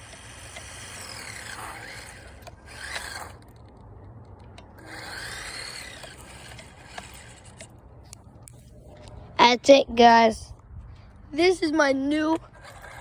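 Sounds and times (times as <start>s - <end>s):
remote-control car motor whining: 0.0s - 3.6s, 4.8s - 7.7s, 12.5s - 13.0s.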